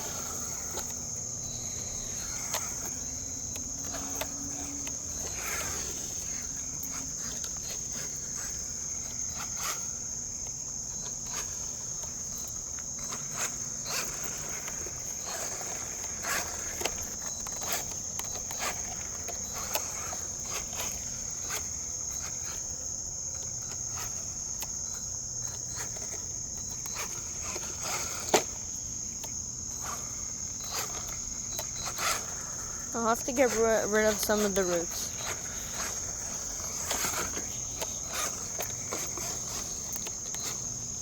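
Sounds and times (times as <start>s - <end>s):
insect chorus: 0.0s - 41.0s.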